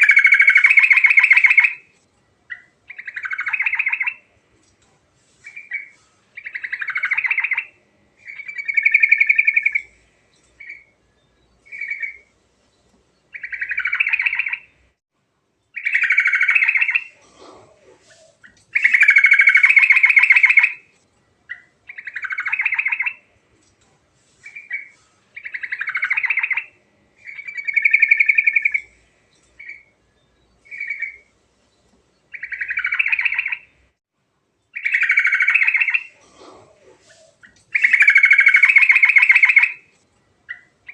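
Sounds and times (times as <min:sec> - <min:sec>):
bulbul singing: 0:00.0 - 0:01.8, 0:02.5 - 0:04.3, 0:05.4 - 0:12.3, 0:13.2 - 0:14.8, 0:18.0 - 0:20.8, 0:24.4 - 0:31.3, 0:32.3 - 0:33.8, 0:34.7 - 0:36.2, 0:37.0 - 0:39.9.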